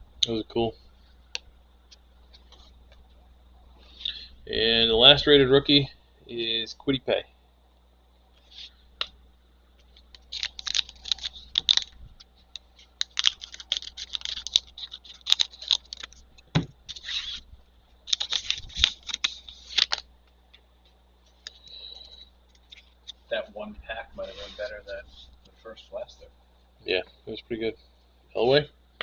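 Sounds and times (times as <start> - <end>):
cards sliding and flicking: 12.8 - 17.5, 18.1 - 20.0.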